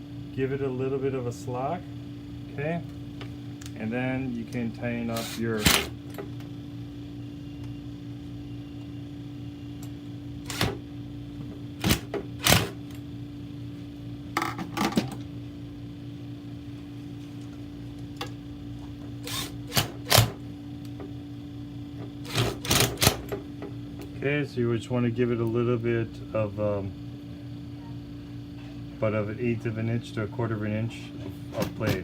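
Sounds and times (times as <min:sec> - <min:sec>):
electrical hum: 0:00.0 - 0:32.0
hand tool clicking on screws: 0:05.2 - 0:05.9.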